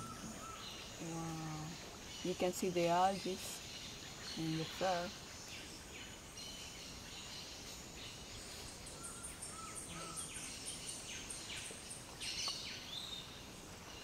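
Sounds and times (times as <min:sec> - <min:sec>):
birds chirping and whistling: 0:00.0 - 0:13.4
steady background hiss: 0:00.0 - 0:14.0.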